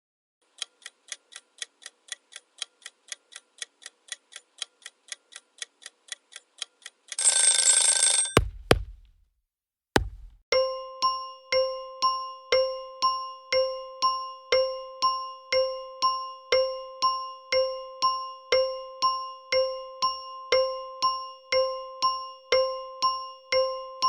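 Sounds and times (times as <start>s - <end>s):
sharp hits: 8.4s - 9.1s.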